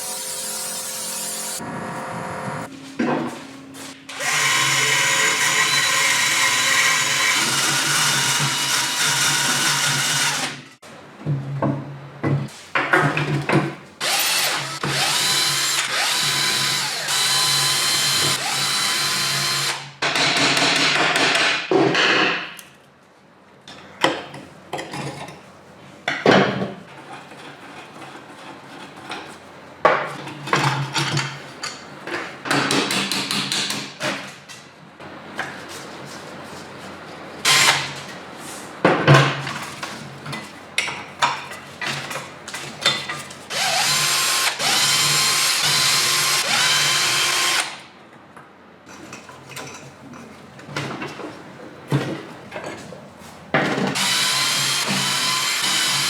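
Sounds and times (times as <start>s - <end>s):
electric power tool running: 4.1s - 10.6s, 14.0s - 19.8s, 43.5s - 47.8s, 54.0s - 56.0s.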